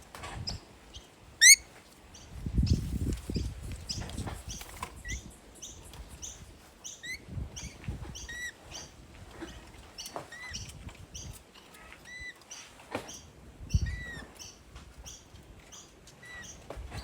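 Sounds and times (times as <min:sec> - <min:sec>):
parrots chirping: 0:01.4 - 0:01.6.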